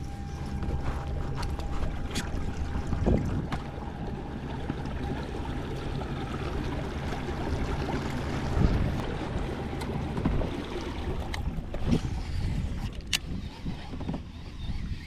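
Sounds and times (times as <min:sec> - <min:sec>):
wind on microphone: 0:00.0 - 0:03.9, 0:07.5 - 0:15.0
low steady hum: 0:00.0 - 0:15.0
water lapping around a kayak: 0:00.0 - 0:15.0.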